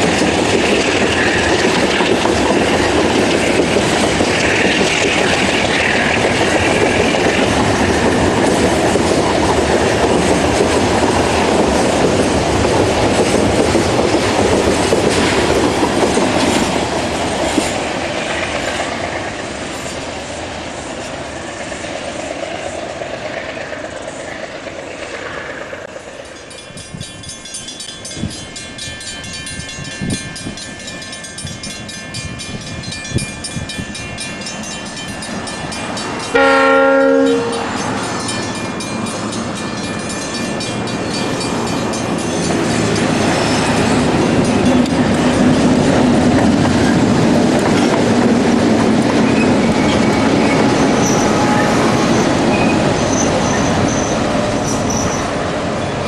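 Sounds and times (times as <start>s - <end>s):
freight wagons clickety-clack: 0.0s - 20.0s, 37.2s - 55.4s
diesel locomotive humming: 0.0s - 56.0s.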